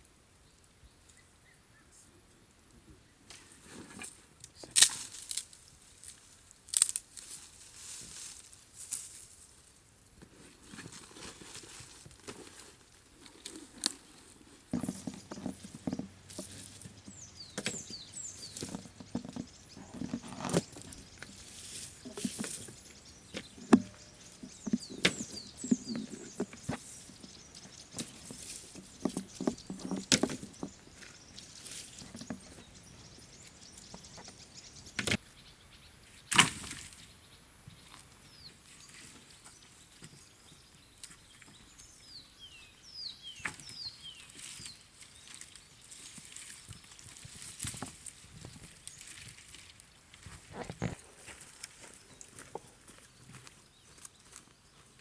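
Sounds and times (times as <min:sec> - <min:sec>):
hands handling objects: 0:14.8 - 0:35.2.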